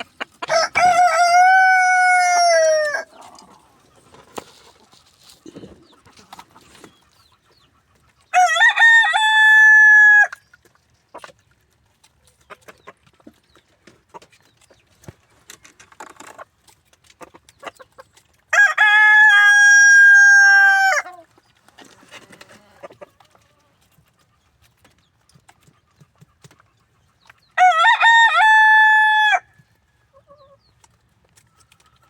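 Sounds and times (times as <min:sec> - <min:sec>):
rooster crowing: 0:00.4 - 0:03.1, 0:08.4 - 0:10.3, 0:18.6 - 0:21.1, 0:27.6 - 0:29.4.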